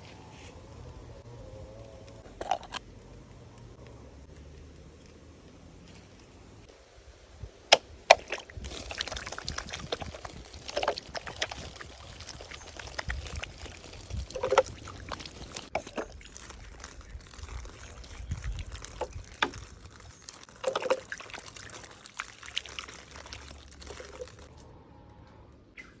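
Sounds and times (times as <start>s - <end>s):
water pouring and trickling: 7.7s - 24.5s.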